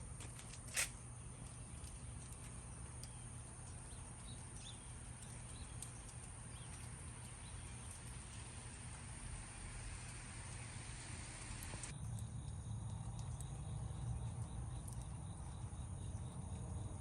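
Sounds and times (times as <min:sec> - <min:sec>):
low steady hum: 0:00.0 - 0:17.0
light rain falling: 0:02.1 - 0:11.9
drips ticking: 0:02.8 - 0:15.4.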